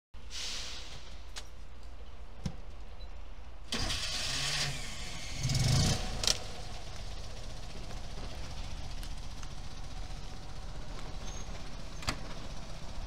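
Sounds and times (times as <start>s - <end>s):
engine starting and idling: 3.7s - 13.0s.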